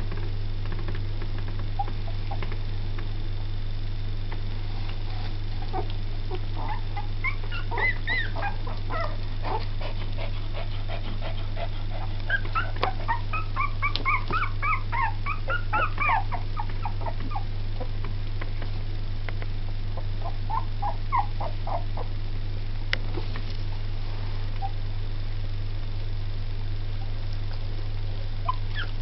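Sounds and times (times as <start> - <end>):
steady low hum: 0.0 - 29.0
puppies squeaking and whimpering: 5.6 - 10.0, 11.6 - 17.5, 20.2 - 22.1, 28.4 - 29.0.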